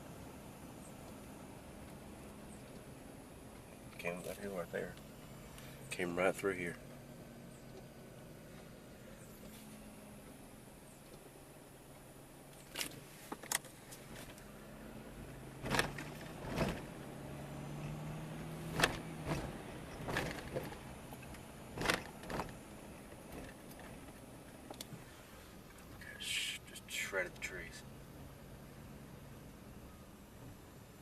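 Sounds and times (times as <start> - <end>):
car interior hum: 0.0 - 31.0
knocks and thumps: 15.6 - 16.9, 18.7 - 20.8, 21.8 - 22.6.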